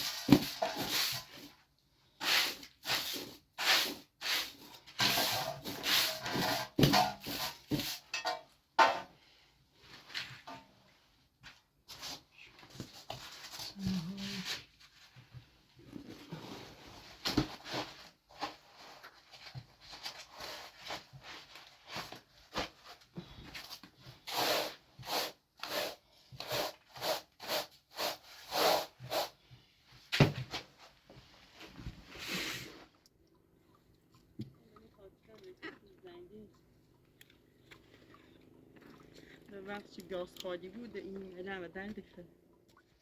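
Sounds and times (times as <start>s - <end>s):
scraping strokes: 2.2s - 8.2s.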